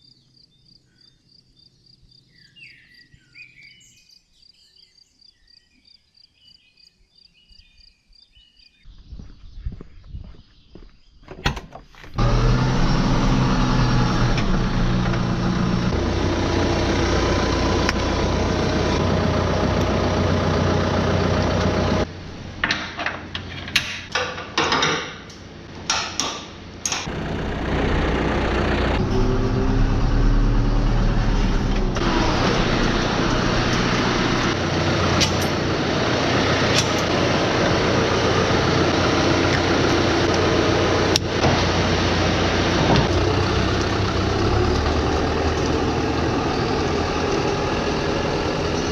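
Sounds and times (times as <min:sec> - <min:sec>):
vehicle engine running: 0:12.2 - 0:22.2, 0:26.7 - 0:48.9.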